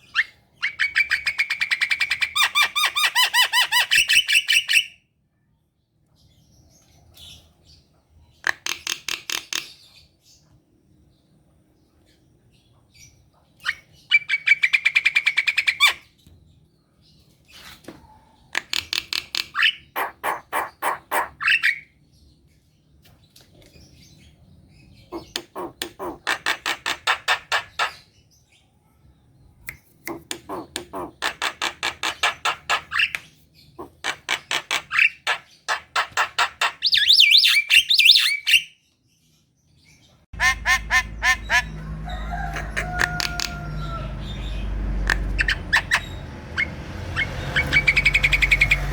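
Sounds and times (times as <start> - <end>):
bird harsh rattling song: 40.4 - 48.9.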